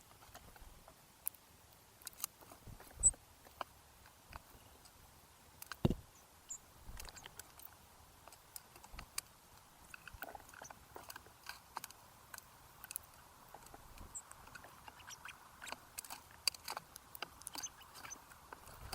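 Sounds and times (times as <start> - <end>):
birds pecking at feeder: 0.0 - 5.0, 5.6 - 18.9
seeds cracking: 2.0 - 3.7.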